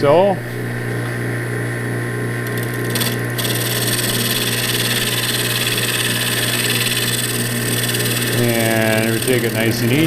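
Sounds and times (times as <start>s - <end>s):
wood lathe running: 2.4s - 10.0s.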